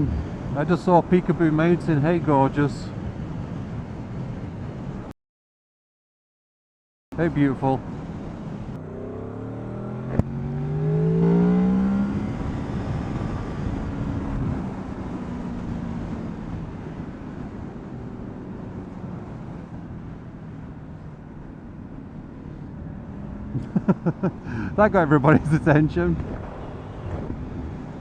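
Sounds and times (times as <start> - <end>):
motorcycle engine accelerating: 8.8 - 16.6.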